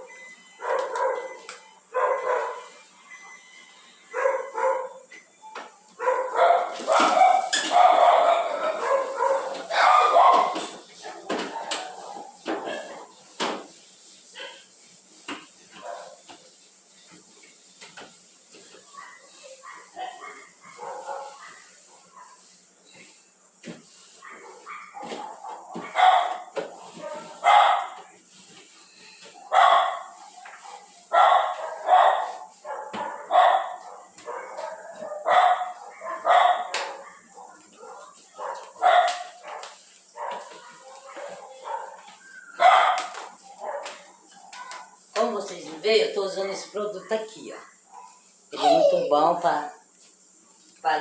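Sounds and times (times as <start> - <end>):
dog barking: 0.6 - 2.7, 4.1 - 5.1, 6.0 - 13.1, 18.9 - 22.4, 24.2 - 28.0, 29.4 - 45.0, 47.6 - 48.2.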